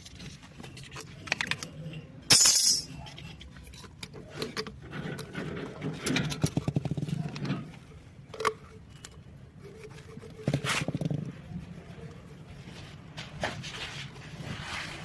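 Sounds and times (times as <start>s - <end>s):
pipe clicks and scrapes: 0.0s - 1.9s, 2.9s - 15.0s.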